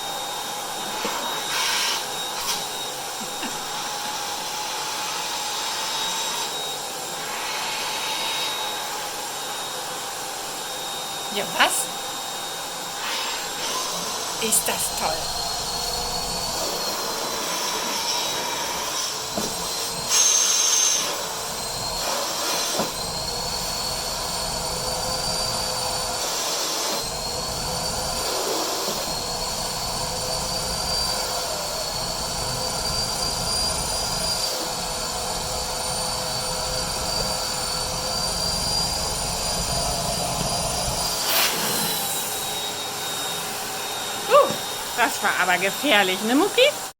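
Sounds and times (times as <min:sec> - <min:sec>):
vacuum cleaner running: 0:00.0 - 0:46.9.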